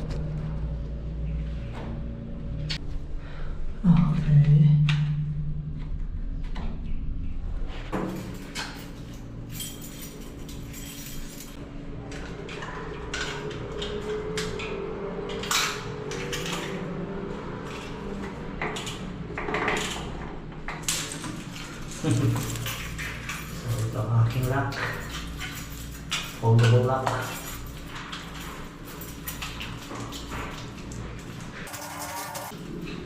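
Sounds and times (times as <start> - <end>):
steady background hum: 0.0 - 33.0
metal lock links clicking: 18.7 - 31.4.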